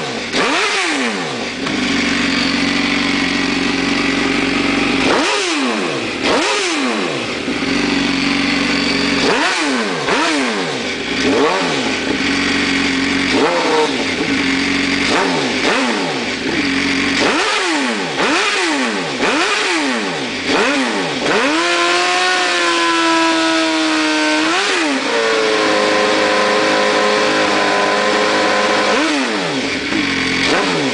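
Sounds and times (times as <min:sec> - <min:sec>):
motorcycle engine revving: 0:00.0 - 0:30.9
motorcycle engine fast idle: 0:01.3 - 0:05.4, 0:07.2 - 0:09.6, 0:10.8 - 0:17.2.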